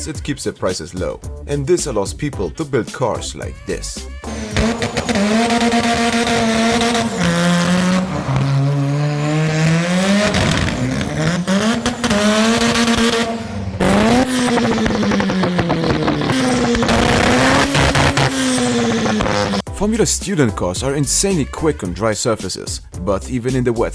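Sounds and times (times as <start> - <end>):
car engine revving: 4.2 - 19.7.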